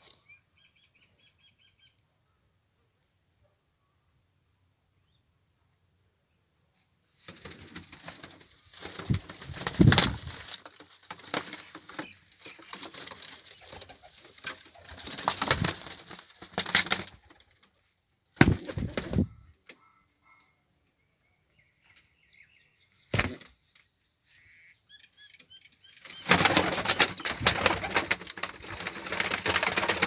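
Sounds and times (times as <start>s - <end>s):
pigeons flapping wings: 7.2s - 17.6s, 18.4s - 19.3s, 26.1s - 30.0s.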